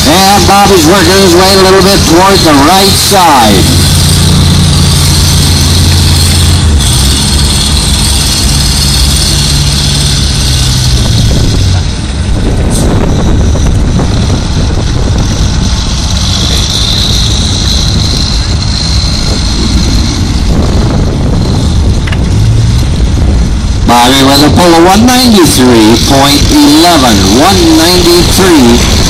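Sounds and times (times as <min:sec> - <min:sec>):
tractor engine under load: 0:00.0 - 0:29.0.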